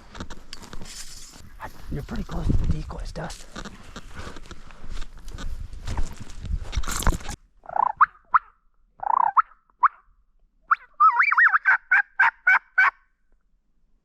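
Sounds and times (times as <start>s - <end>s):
rustling: 0.0s - 7.4s
turkey gobbling: 7.7s - 10.0s, 10.7s - 13.0s
turkey yelping: 7.7s - 10.0s, 10.7s - 13.0s.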